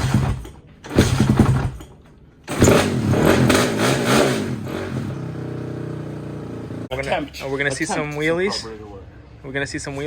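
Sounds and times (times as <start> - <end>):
motorbike engine revving: 0.0 - 1.8, 2.5 - 6.9.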